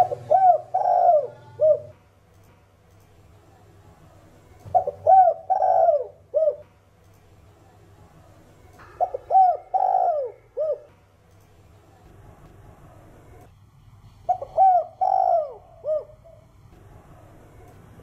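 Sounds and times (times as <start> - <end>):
dove cooing: 0.0 - 2.0, 4.7 - 6.7, 8.9 - 11.0, 14.3 - 16.6.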